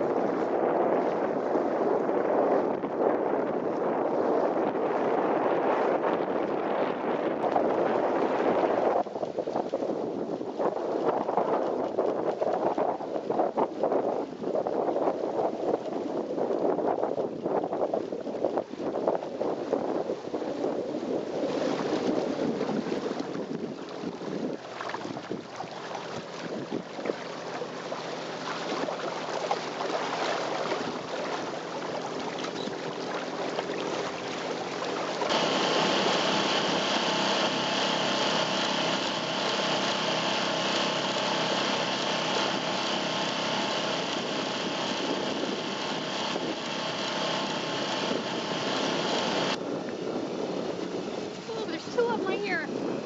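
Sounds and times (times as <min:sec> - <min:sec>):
wind and water noise: 0:00.0 - 0:53.0
boat motor humming: 0:27.6 - 0:49.6, 0:51.2 - 0:52.7.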